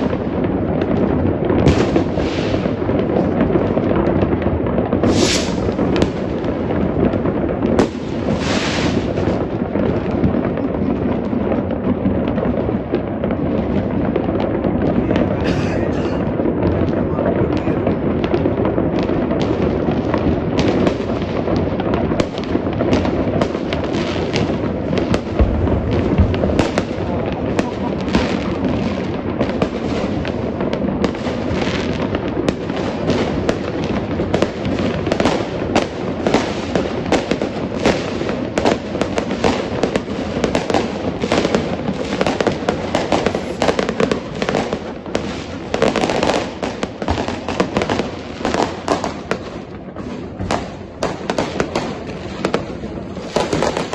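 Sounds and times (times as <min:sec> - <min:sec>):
distant fireworks booms: 0:00.0 - 0:53.9
fireworks cracks and bangs: 0:00.0 - 0:53.9.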